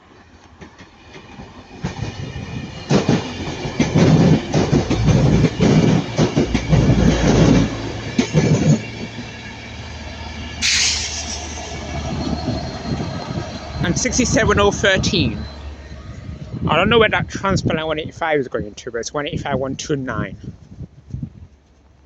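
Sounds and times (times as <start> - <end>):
train wheels clattering: 2.9 - 9.3, 10.6 - 13.6
brief hiss: 10.6 - 12.1.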